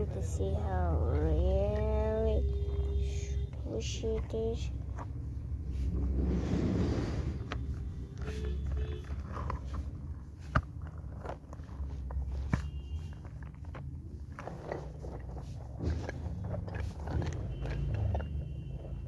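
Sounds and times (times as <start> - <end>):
foam toy crackling and rubbing: 0.0 - 19.0.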